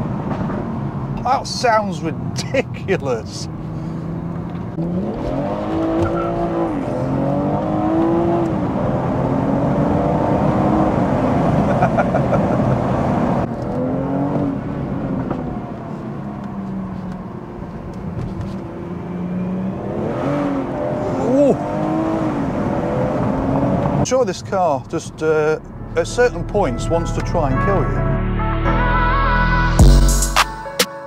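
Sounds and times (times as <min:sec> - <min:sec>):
car engine accelerating through gears: 0:03.5 - 0:24.0.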